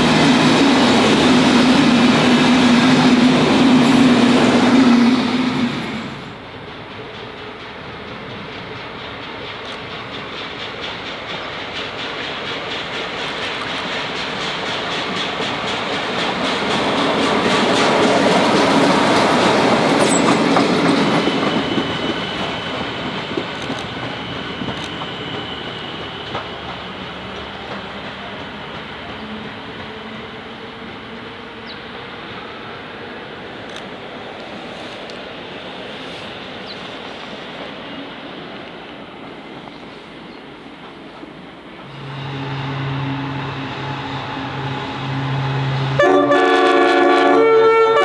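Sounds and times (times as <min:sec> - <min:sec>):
distant train: 0:00.0 - 0:48.0
railcar passing: 0:00.0 - 0:48.0.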